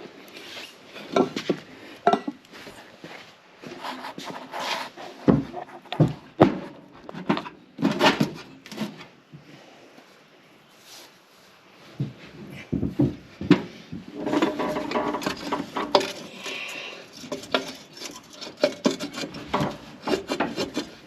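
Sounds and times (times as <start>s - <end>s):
metal tools clanking and rattling: 2.0s - 2.4s, 14.1s - 20.6s.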